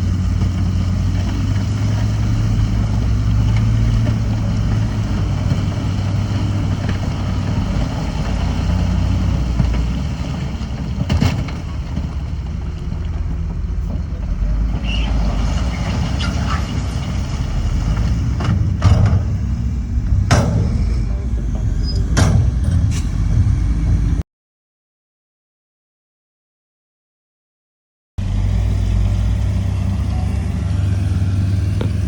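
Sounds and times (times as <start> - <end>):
diesel machinery rumbling: 0.0 - 24.2, 28.2 - 32.0
sharp metallic knocks: 18.5 - 23.1.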